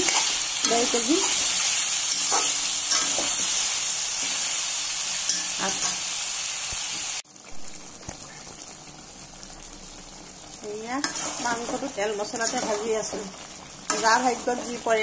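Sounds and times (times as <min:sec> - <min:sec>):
spatula scraping a pan: 0:00.0 - 0:03.6, 0:11.0 - 0:14.8
chicken sizzling in hot oil: 0:00.0 - 0:15.0.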